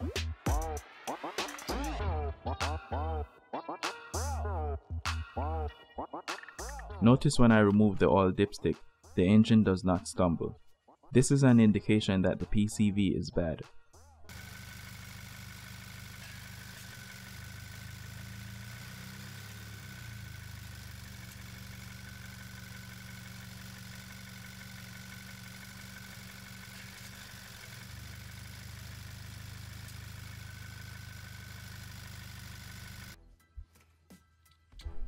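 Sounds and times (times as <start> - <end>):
car engine idling: 14.3 - 33.2.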